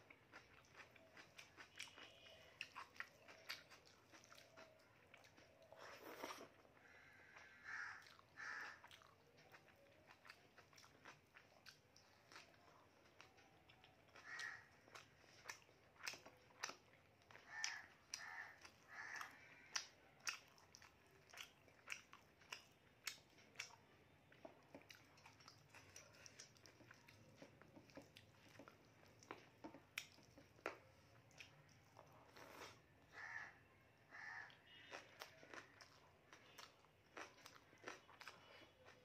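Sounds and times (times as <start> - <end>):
chewing with lip smacks: 0.0 - 33.4, 34.1 - 39.0.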